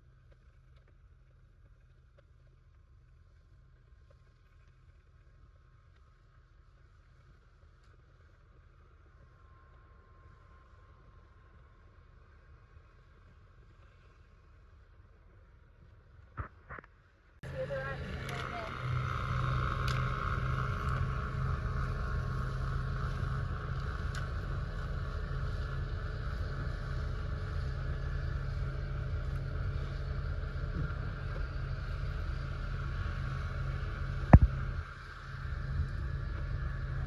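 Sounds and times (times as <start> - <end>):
small engine running: 17.4 - 37.0.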